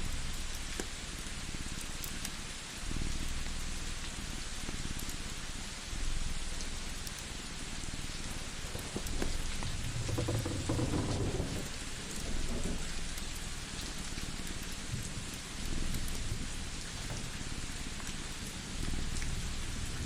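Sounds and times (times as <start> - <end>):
rain-like hiss with crackles: 0.0 - 20.0
low rumble: 8.2 - 11.7.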